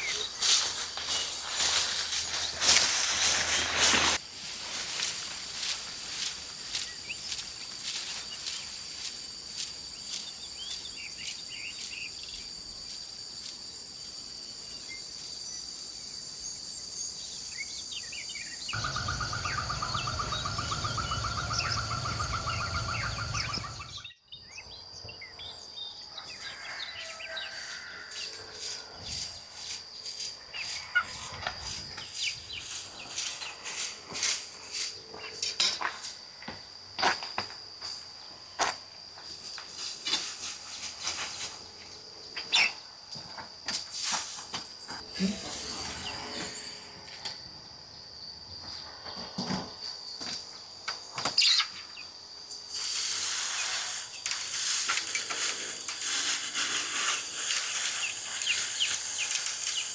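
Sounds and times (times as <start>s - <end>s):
birds chirping: 17.0s - 24.2s
high-pitched hum: 18.8s - 24.0s.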